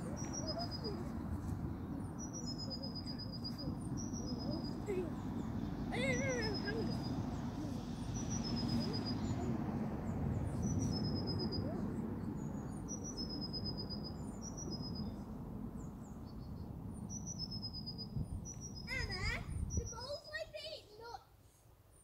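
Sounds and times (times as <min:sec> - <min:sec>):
small bird singing: 0:00.0 - 0:20.7.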